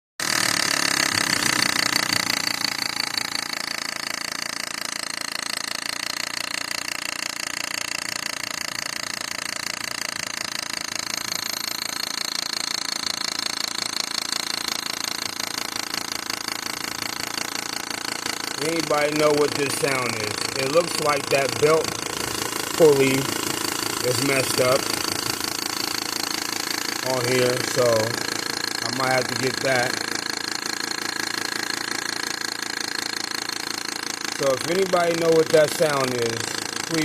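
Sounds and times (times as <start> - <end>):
car engine running: 14.7 - 37.0
belt drive rattling: 15.3 - 37.0.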